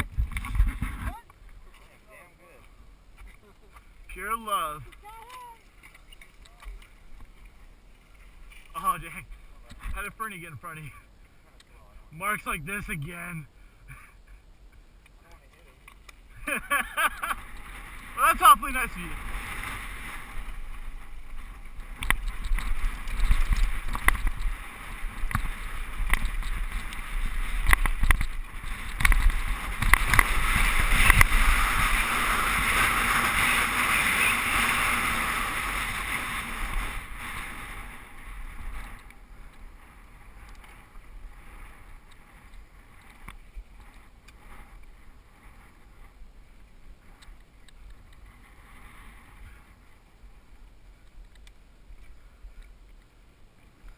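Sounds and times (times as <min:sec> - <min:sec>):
wind rushing over microphone: 0:00.0 - 0:01.2, 0:17.1 - 0:47.2
bike rattling and knocking: 0:20.2 - 0:36.6.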